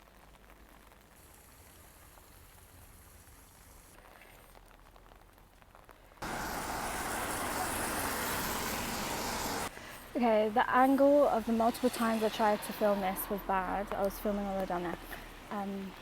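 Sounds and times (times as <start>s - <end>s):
rain falling: 0.0s - 16.0s
street noise: 6.2s - 16.0s.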